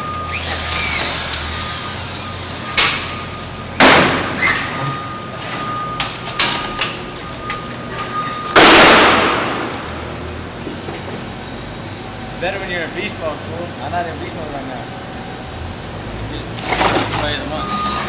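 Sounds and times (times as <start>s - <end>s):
faint machine whine: 0.0s - 18.0s
sharp knocks and bangs: 3.8s - 4.7s, 8.5s - 9.9s
loud burst of noise: 8.5s - 10.1s.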